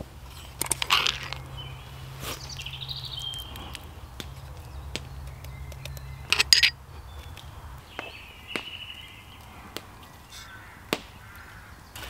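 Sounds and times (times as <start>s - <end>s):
bird harsh call: 7.9s - 12.0s.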